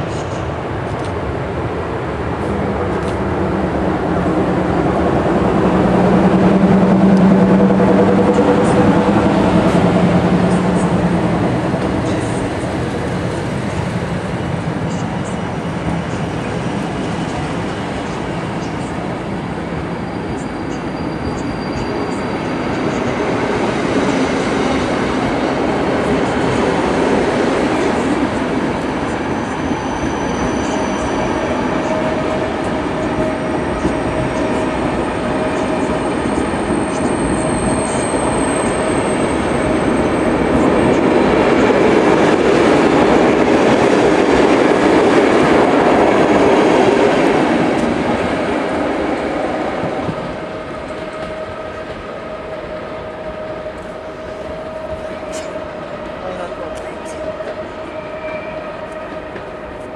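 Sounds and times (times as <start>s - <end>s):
train wheels on rails: 0.0s - 59.9s
wheel squeals: 19.9s - 23.2s, 29.2s - 32.2s.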